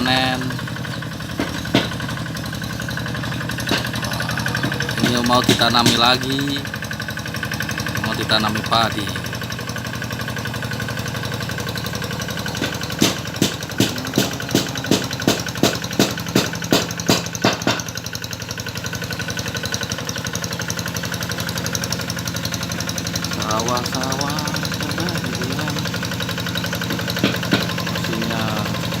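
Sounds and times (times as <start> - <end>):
tractor engine running: 0.0 - 29.0
sharp knocks: 0.9 - 2.3, 3.2 - 6.4, 12.4 - 18.0, 25.8 - 28.1.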